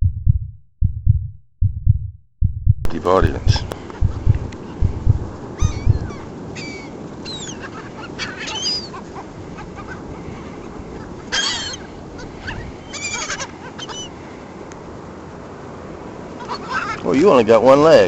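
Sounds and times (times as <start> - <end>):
wind thumps on microphone: 0.0 - 6.4
seagulls calling: 3.0 - 4.8, 5.4 - 14.3, 16.3 - 17.0.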